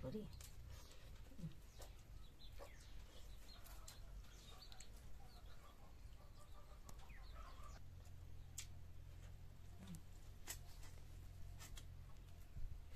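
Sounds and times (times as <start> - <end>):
faint birds chirping: 0.0 - 12.9
low steady hum: 0.0 - 12.9.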